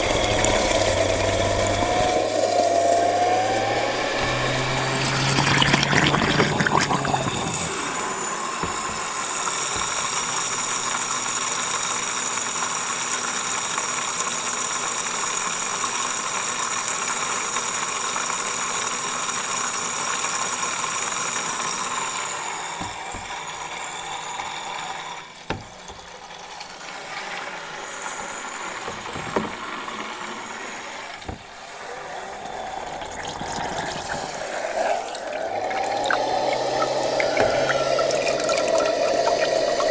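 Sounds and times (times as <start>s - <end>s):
vacuum cleaner motor whining: 0.0s - 39.9s
water sounds: 0.0s - 39.9s
knocks: 8.6s - 10.1s, 22.8s - 23.8s, 25.4s - 26.6s, 28.8s - 30.0s, 31.2s - 31.6s, 37.2s - 38.8s.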